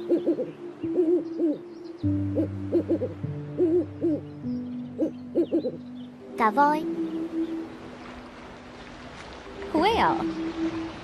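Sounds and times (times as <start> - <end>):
sustained background tones: 0.0 - 11.0
owl hooting: 2.3 - 4.3, 5.0 - 5.8.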